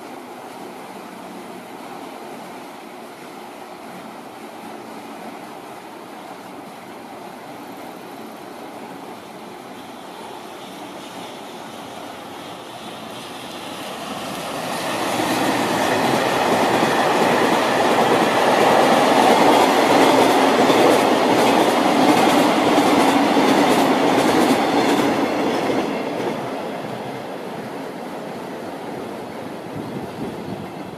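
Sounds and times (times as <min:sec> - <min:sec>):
freight train passing: 0:00.0 - 0:30.9
wheels clacking over rail joints: 0:13.9 - 0:27.1.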